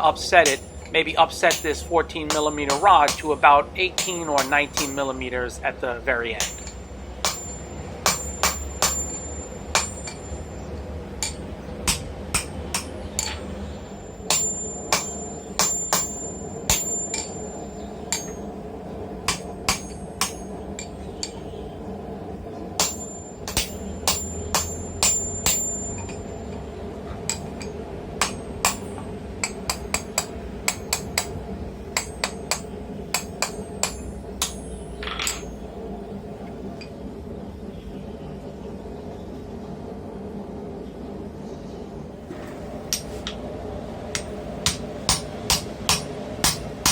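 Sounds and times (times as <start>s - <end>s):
hammer striking hot steel: 0.0s - 5.3s, 6.3s - 21.6s, 22.8s - 35.6s, 42.9s - 43.4s, 44.1s - 46.9s
low hum: 0.0s - 41.2s.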